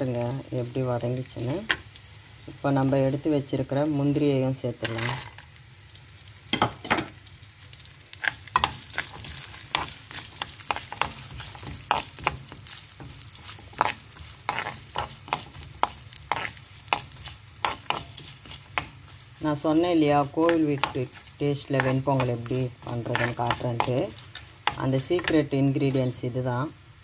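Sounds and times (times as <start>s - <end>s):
food sizzling in ghee: 0.0s - 27.0s
steel spoon scraping pan: 8.6s - 19.0s, 19.8s - 26.1s.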